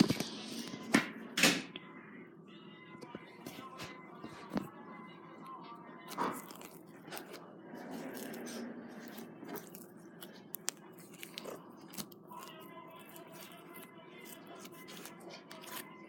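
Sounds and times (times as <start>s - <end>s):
slime crackling and crunching: 6.1s - 16.0s.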